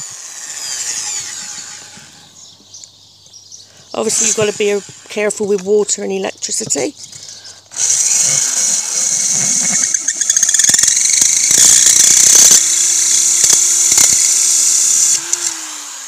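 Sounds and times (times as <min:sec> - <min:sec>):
drill bit grinding squeal: 0:00.0 - 0:02.5, 0:04.0 - 0:05.5
drill motor hum: 0:00.0 - 0:02.6, 0:04.0 - 0:05.6, 0:06.6 - 0:16.0.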